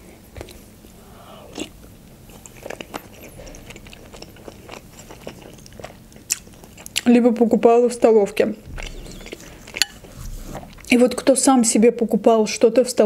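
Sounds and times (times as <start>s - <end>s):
person chewing food: 0.2s - 7.1s, 8.6s - 10.9s.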